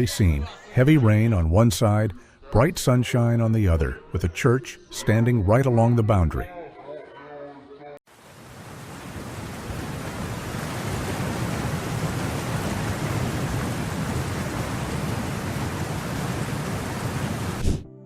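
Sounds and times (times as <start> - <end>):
heavy rain pouring: 8.1 - 17.7.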